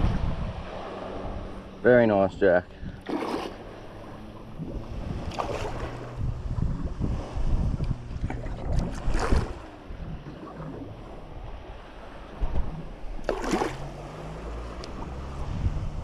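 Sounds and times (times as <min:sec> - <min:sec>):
wind rumbling on microphone: 0:00.0 - 0:16.0
microphone handling noise: 0:04.6 - 0:10.6.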